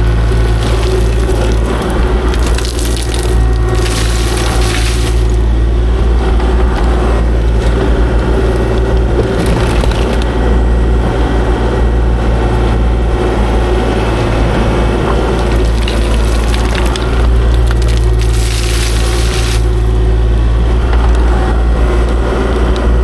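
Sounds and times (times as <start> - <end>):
rock crunching and knocking: 0.0 - 5.5, 15.2 - 20.1
excavator diesel engine running: 0.0 - 23.0
hydraulics whining: 0.0 - 23.0.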